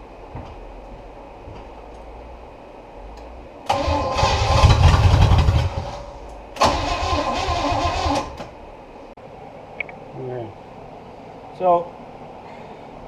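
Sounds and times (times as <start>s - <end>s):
boat engine starter cranking: 6.6s - 8.4s.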